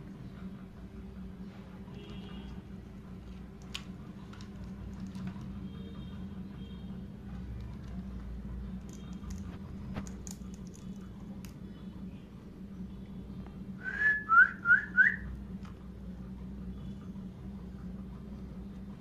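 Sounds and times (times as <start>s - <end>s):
low background hum: 0.0s - 19.0s
loud whistled notes: 13.8s - 15.3s.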